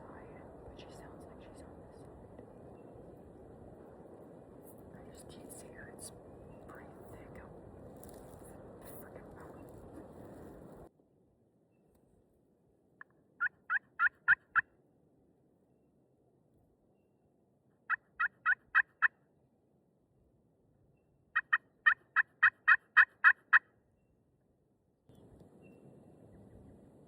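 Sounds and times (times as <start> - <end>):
turkey yelps: 13.4 - 14.6, 17.9 - 19.1, 21.4 - 23.6.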